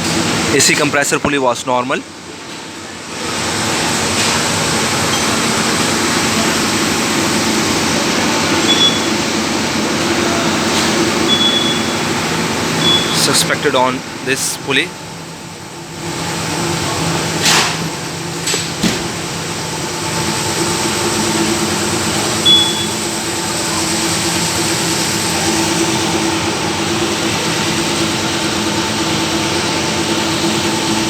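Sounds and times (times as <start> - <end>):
engine hum and belt whine: 2.0 - 31.0.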